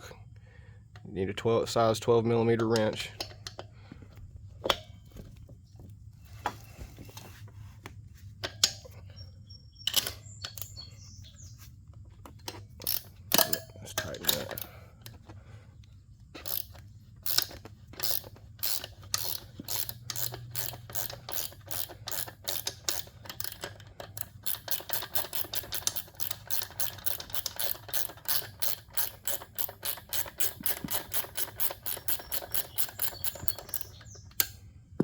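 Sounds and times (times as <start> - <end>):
ratchet wrench clicking: 2.6 - 3.7, 12.4 - 15.2, 16.4 - 34.6.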